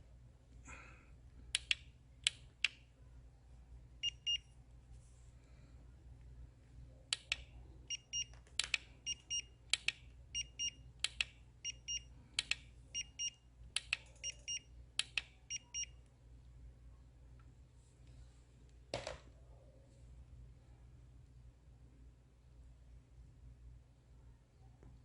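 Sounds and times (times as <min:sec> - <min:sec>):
low steady hum: 0:00.0 - 0:25.0
sharp clicks: 0:01.5 - 0:02.8, 0:07.1 - 0:07.5, 0:08.2 - 0:10.1, 0:11.0 - 0:11.4, 0:12.4 - 0:12.7, 0:13.7 - 0:15.3.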